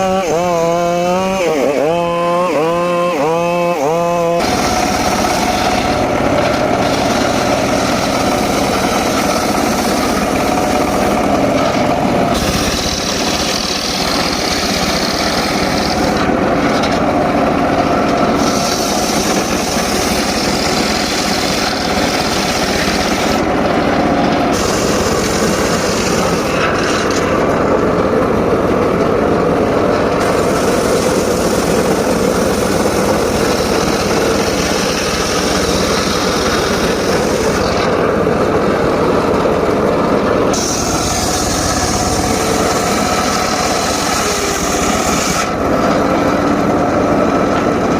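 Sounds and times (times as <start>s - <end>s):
circular saw cutting wood: 0.0s - 47.9s
high hiss: 4.4s - 16.3s, 40.4s - 45.6s.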